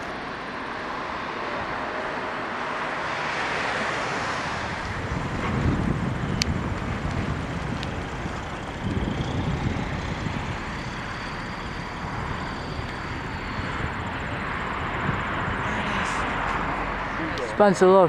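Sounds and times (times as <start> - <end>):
faint high engine whine: 0.0 - 18.0
jet airliner engines rumbling: 0.0 - 18.0.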